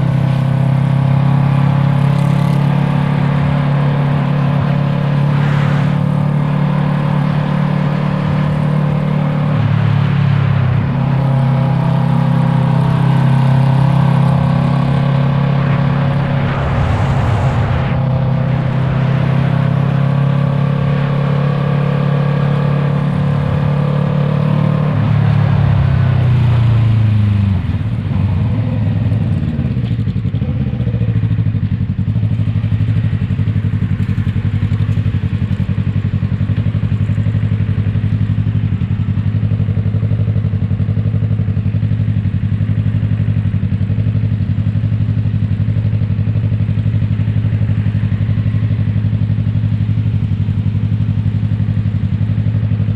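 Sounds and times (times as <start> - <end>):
motorcycle engine idling: 28.6 - 52.9.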